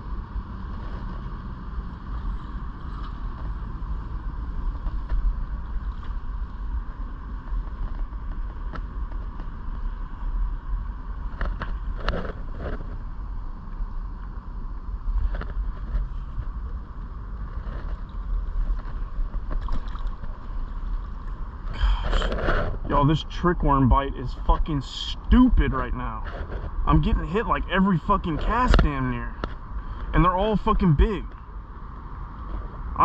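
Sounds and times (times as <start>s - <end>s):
background hum: 0.0s - 33.0s.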